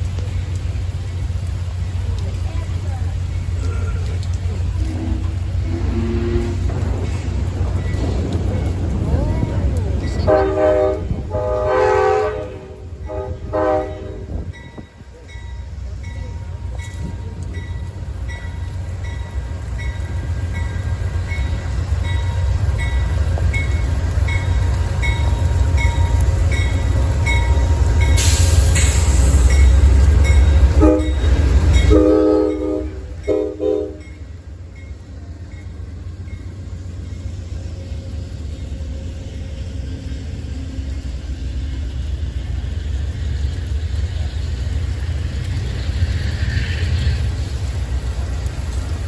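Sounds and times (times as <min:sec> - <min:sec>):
train rumbling past: 0:00.0 - 0:49.0
train horn blasts: 0:04.8 - 0:07.1, 0:10.1 - 0:14.8, 0:30.6 - 0:34.3
short hiss: 0:28.1 - 0:29.8.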